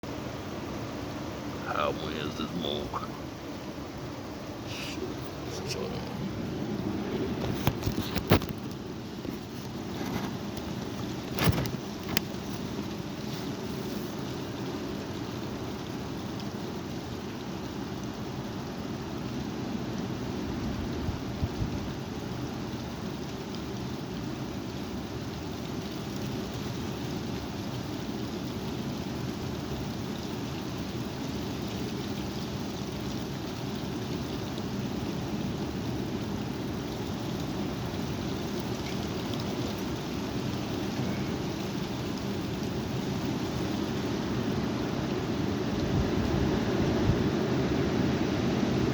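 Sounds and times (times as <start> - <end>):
strong wind buffeting microphone: 44.2 - 48.9.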